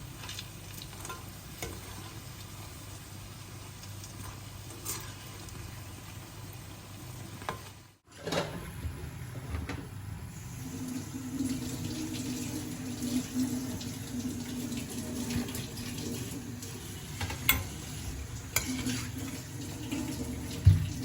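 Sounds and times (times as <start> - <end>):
water running: 10.3 - 21.0.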